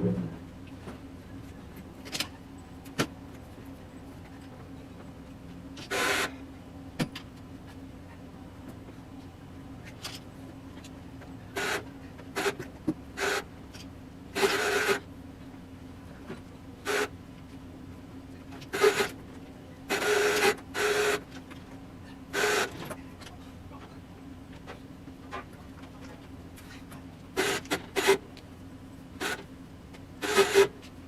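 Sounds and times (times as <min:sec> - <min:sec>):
low engine hum: 0:00.0 - 0:14.4
ratchet strap rasping: 0:14.4 - 0:15.0, 0:27.4 - 0:28.2, 0:30.2 - 0:30.7.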